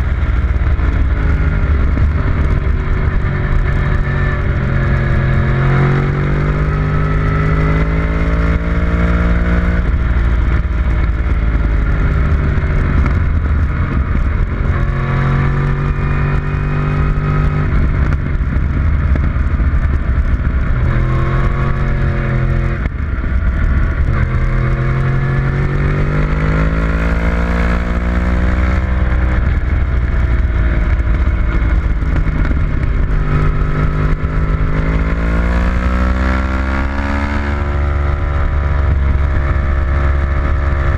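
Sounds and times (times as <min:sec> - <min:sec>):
wind and road noise: 0:00.0 - 0:40.9
racing engine revving through gears: 0:02.4 - 0:09.9, 0:24.0 - 0:29.4, 0:32.2 - 0:40.9.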